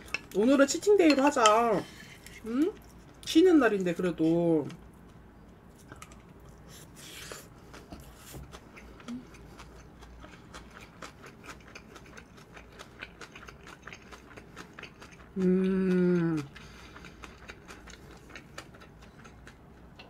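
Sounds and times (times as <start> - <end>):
close chewing wet clicks and crunches: 7.6 - 15.5, 16.2 - 20.0
person humming: 15.4 - 16.5.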